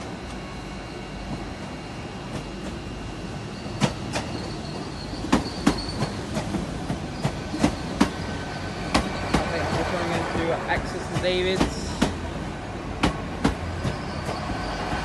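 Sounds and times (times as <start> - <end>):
train rumble: 0.0 - 15.0
faint high squeal: 3.3 - 6.2, 13.8 - 15.0
train wheels clicking over rail joints: 3.6 - 15.0.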